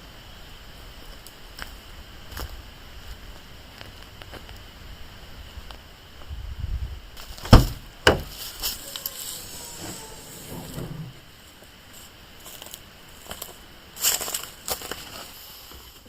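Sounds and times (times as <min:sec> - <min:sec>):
sharp knocks: 0:07.5 - 0:08.4.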